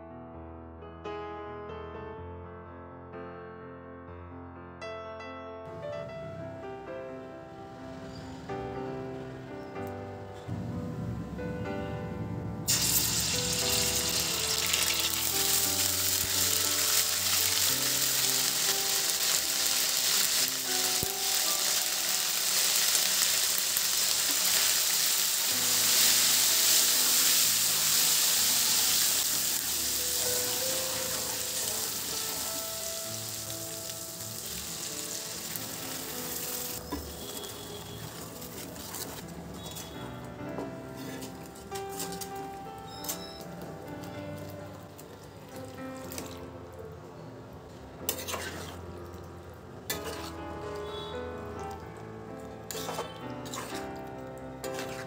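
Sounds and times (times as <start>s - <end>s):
paste sizzling in hot oil: 12.7s - 39.9s, 48.1s - 48.8s, 49.9s - 51.8s, 52.6s - 53.9s
wooden spatula stirring: 36.8s - 40.0s, 48.1s - 49.2s, 49.9s - 51.8s, 52.6s - 55.0s.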